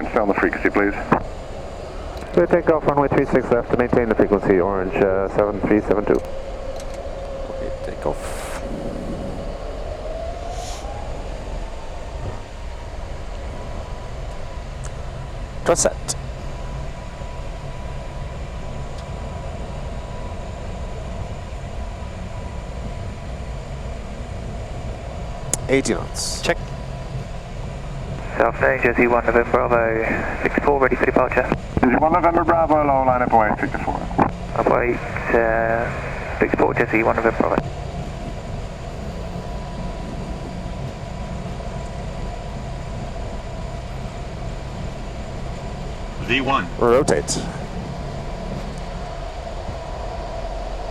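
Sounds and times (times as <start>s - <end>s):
deep rumble of jet engines: 0.0s - 50.9s
faint steady tone: 26.9s - 50.9s.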